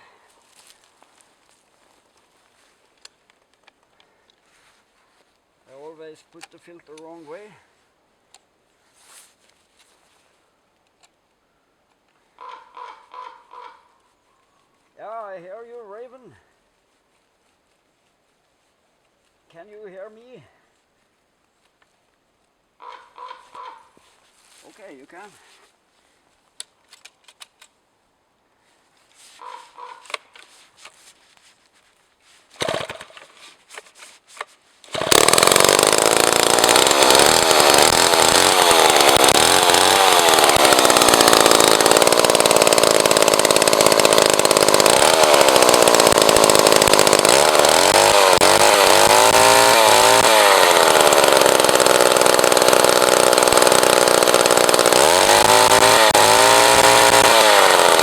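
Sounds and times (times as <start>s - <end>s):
chainsaw starter rasp: 32.5s - 58.0s
chainsaw engine revving: 32.6s - 33.4s, 34.9s - 58.0s.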